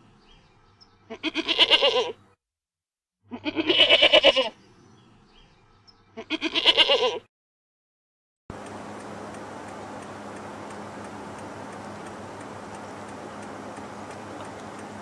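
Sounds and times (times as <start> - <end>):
goat bleating: 1.1 - 2.2, 3.3 - 4.6, 6.2 - 7.3.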